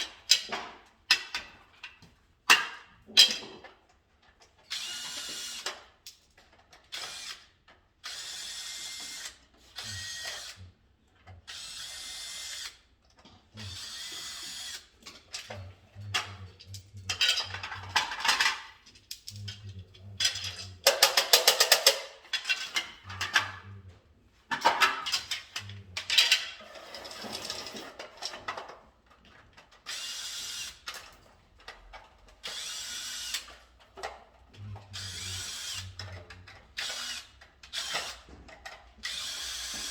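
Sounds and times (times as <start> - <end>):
electric screwdriver whirring: 13.6 - 14.9, 32.5 - 33.5, 35.0 - 36.0, 36.8 - 38.2.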